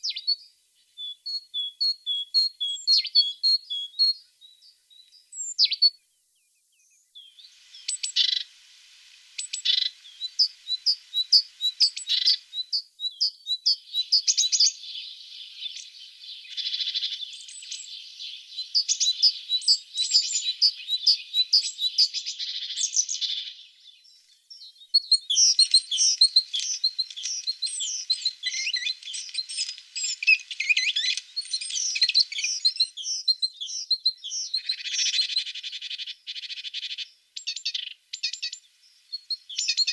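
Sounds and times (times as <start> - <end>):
tit chirping and trilling: 25.0 - 35.4.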